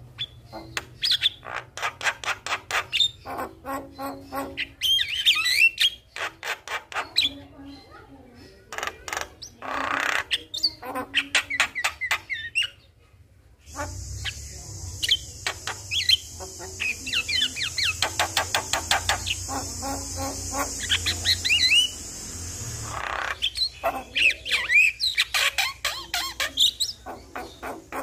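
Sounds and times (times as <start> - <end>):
steady high hiss: 13.6 - 24.6
bird clicking and whistling: 15.0 - 22.2.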